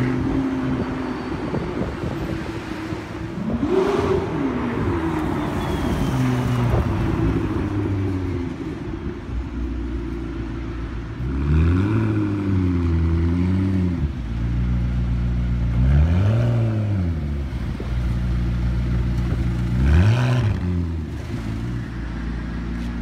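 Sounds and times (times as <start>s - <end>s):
sports car engine idling and revving: 0.0s - 23.0s.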